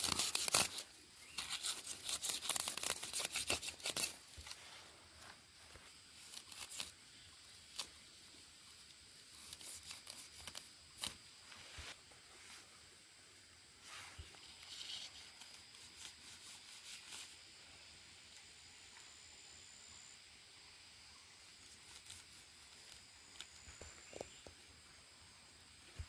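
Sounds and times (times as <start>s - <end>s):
sharp snaps and clicks: 0.0s - 4.6s
rustling and tearing: 0.0s - 7.0s, 7.7s - 8.0s, 8.8s - 12.0s, 13.8s - 17.4s, 21.6s - 24.4s.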